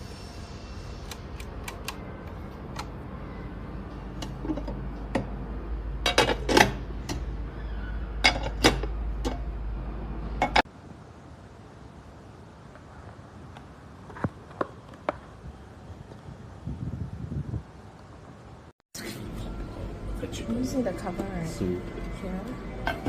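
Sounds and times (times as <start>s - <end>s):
low steady hum: 19.0s - 23.0s.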